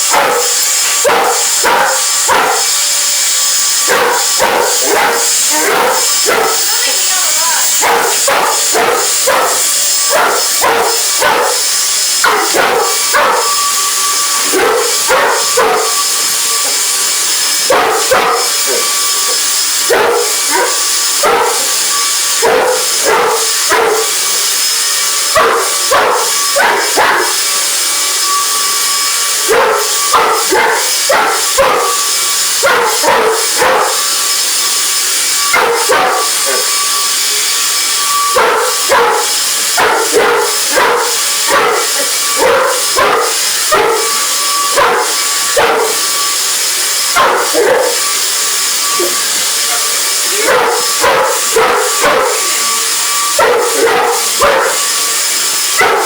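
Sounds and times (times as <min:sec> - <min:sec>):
dog barking: 0:00.0 - 0:56.0
vacuum cleaner running: 0:00.0 - 0:56.0.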